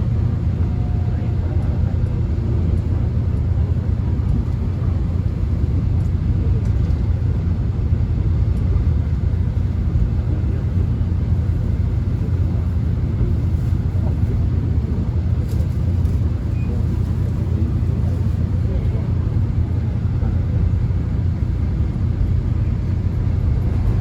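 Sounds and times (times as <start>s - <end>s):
subway train rumbling: 0.0s - 24.0s.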